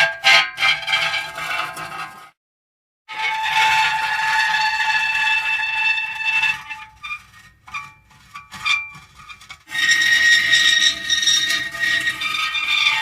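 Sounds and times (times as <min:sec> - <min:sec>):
metal creaking: 0:06.5 - 0:13.0.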